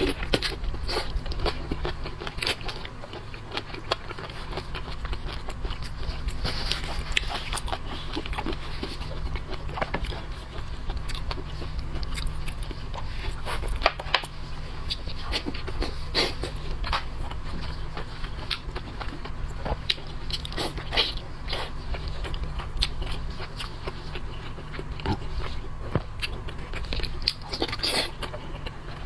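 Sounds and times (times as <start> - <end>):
close-up chewing: 0.0 - 29.0
steady low hum: 0.0 - 29.0.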